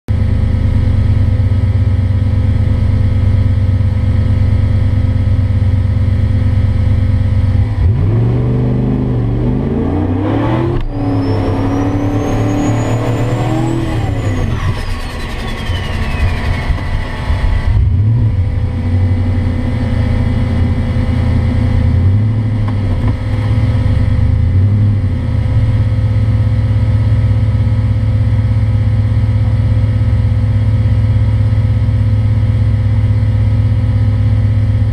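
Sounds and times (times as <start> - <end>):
car engine revving: 2.5 - 26.1
turbo whistle: 10.8 - 17.5.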